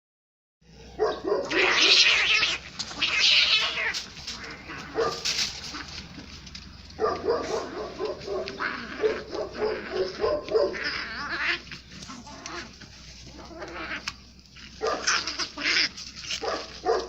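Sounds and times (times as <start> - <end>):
cats screeching yowls: 1.4 - 6.0, 8.4 - 16.8.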